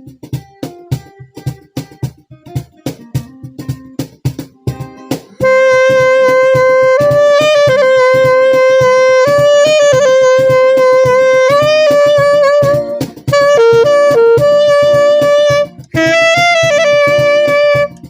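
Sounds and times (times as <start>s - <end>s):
plucked guitar-like accompaniment: 0.0s - 18.0s
saxophone melody: 4.7s - 18.0s.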